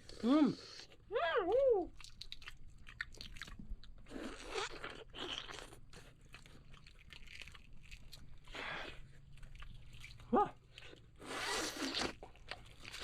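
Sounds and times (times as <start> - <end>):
person chewing crunchy food: 1.9 - 13.0.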